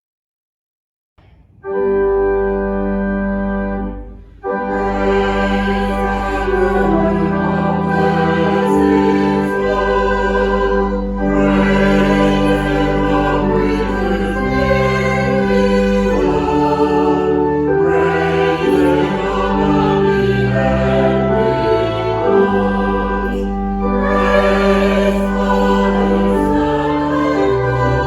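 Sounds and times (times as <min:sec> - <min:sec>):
instrumental accompaniment: 0:01.2 - 0:28.0
choir singing sustained chords: 0:01.7 - 0:28.0
singers breathing: 0:04.0 - 0:04.8.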